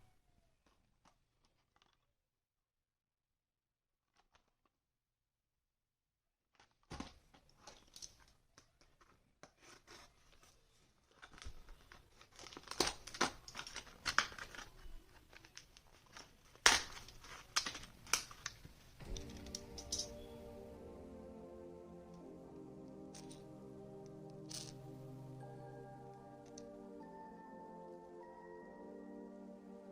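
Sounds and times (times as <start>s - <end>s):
plastic packaging crinkling: 7.6s - 19.5s
music: 19.0s - 29.9s.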